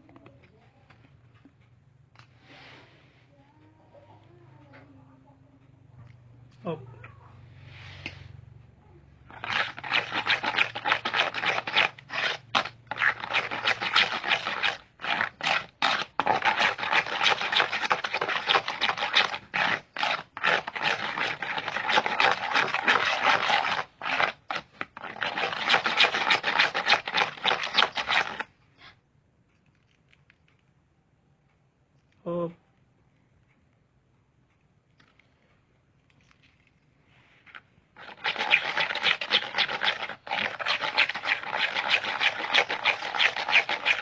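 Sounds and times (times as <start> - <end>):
rubbing and scraping: 9.2 - 29.0, 36.2 - 44.0.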